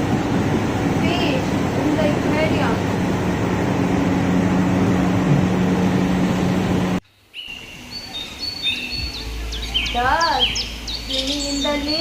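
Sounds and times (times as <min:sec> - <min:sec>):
aquarium water rushing with hum: 0:00.0 - 0:07.0
birds chirping: 0:01.1 - 0:12.0.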